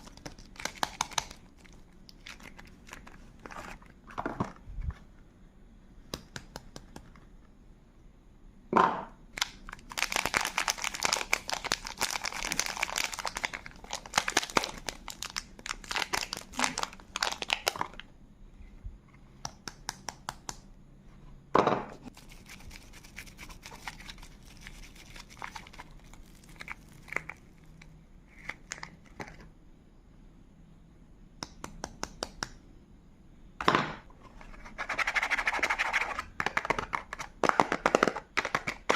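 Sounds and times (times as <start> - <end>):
wrapper crinkling and tearing: 0.0 - 3.8, 9.4 - 18.0, 23.1 - 27.4.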